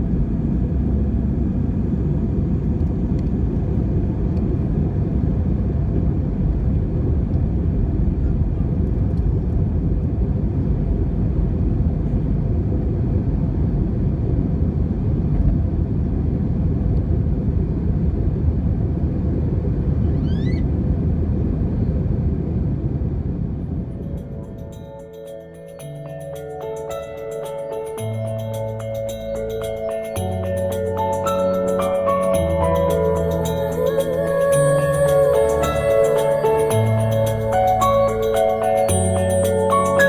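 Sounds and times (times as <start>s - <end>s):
airplane cabin engine rumble: 0.0s - 40.0s
high rising squeak: 20.0s - 20.7s.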